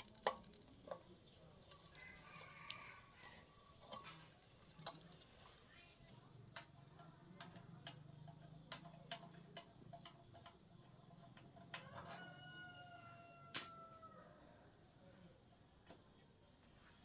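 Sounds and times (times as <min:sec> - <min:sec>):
faint clicks and taps: 0:03.8 - 0:11.9.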